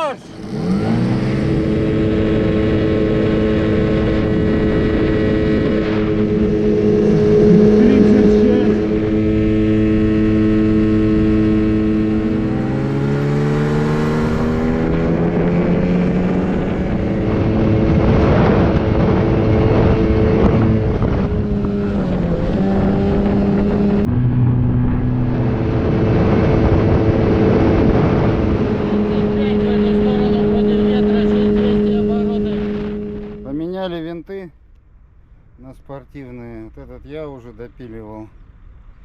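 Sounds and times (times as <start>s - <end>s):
outboard motors running: 0.0s - 39.0s.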